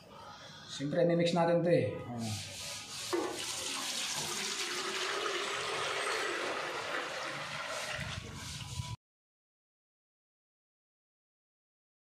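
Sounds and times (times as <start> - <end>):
liquid pouring into can: 3.2 - 8.3.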